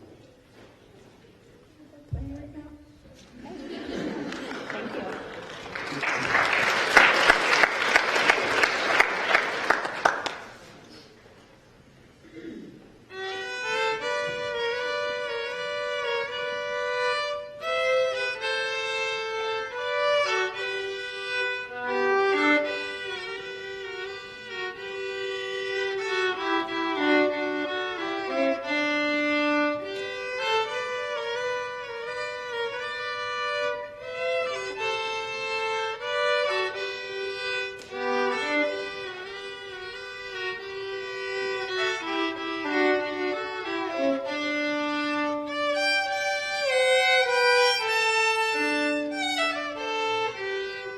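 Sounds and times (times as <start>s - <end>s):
slow violin melody: 13.1s - 50.9s.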